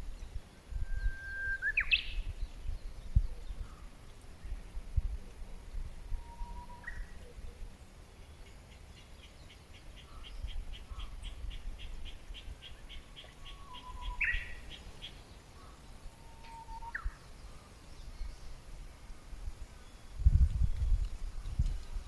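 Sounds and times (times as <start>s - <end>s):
bird whistled upward notes: 0.8s - 2.2s, 6.2s - 7.0s.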